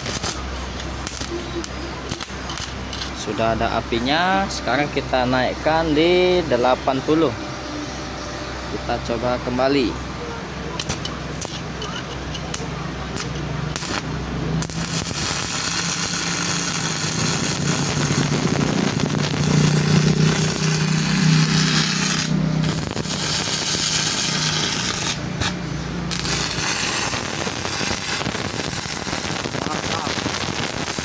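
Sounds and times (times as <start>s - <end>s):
welding arc crackling: 0.0s - 3.4s, 10.8s - 31.0s
welder low hum: 0.0s - 31.0s.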